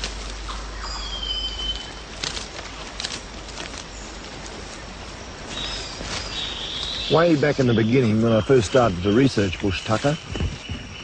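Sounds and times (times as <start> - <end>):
steady rainforest hiss: 0.0 - 11.0
bird whistling: 0.5 - 2.0
sharp clicks and crackles: 2.1 - 4.5.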